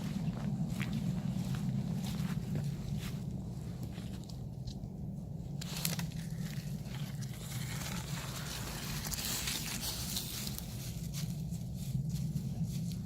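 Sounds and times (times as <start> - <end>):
steady low hum: 0.0 - 13.0
crunching and rustling: 5.5 - 13.0.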